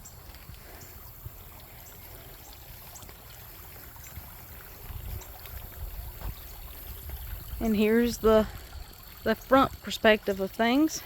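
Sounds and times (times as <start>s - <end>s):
wind buffeting microphone: 3.8s - 10.0s.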